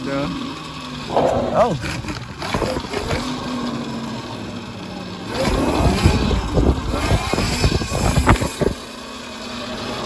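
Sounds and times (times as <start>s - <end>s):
rough rumble with rattles: 0.7s - 4.7s, 5.3s - 8.8s.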